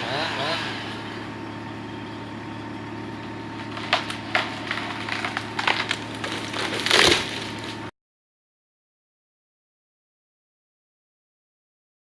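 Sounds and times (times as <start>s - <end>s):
engine idling: 0.0s - 7.9s
sharp cracks and knocks: 3.5s - 7.9s.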